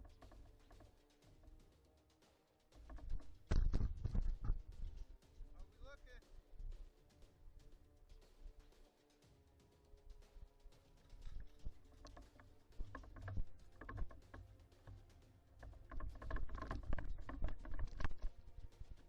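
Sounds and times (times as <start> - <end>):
quiet background music: 0.0 - 19.0
clicking and rattling: 2.8 - 5.1, 10.9 - 19.0.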